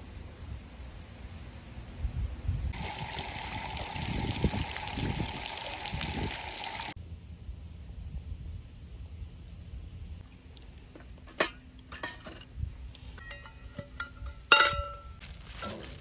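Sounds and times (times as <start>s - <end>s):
water flowing: 2.7s - 7.0s.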